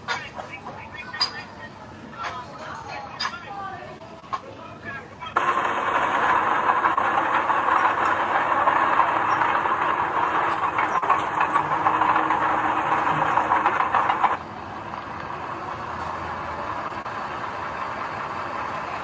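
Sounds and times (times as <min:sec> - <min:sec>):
machinery rumble: 0:00.0 - 0:19.0
construction machinery rattling: 0:05.2 - 0:19.0.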